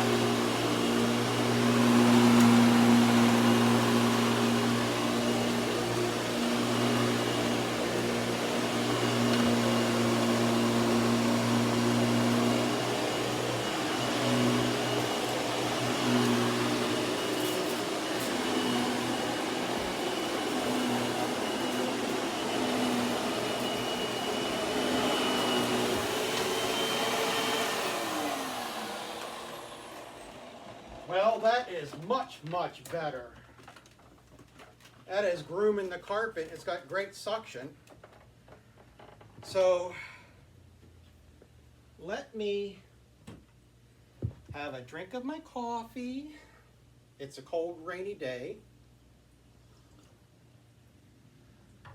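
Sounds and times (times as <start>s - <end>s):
vacuum cleaner running: 0.0s - 32.2s.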